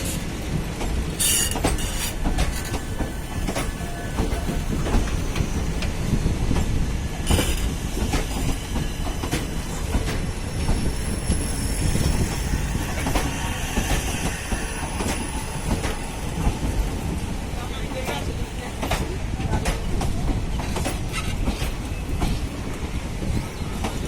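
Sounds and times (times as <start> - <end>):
wheels clicking over rail joints: 0.0 - 11.0
train coaches rumbling past: 0.0 - 24.0.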